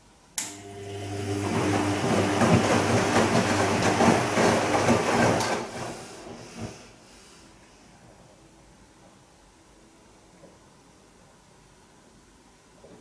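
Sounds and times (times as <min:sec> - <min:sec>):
washing machine motor hum: 0:00.4 - 0:07.0.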